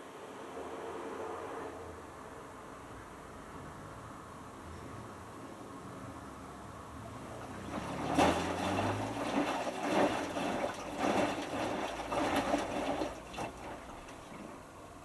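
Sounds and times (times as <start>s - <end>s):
low motor hum: 7.0s - 14.3s
washing machine drum sloshing water: 7.1s - 14.7s.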